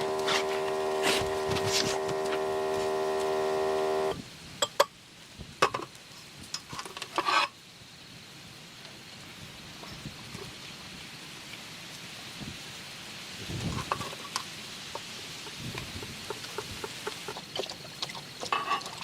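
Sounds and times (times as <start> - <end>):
steady hum: 0.0 - 4.2
faint steady hiss: 0.0 - 19.0.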